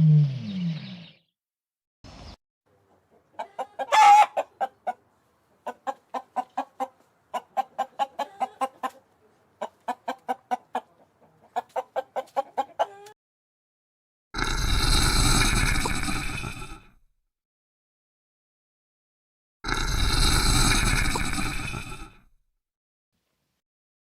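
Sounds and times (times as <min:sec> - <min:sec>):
chicken clucking: 0:02.7 - 0:13.2.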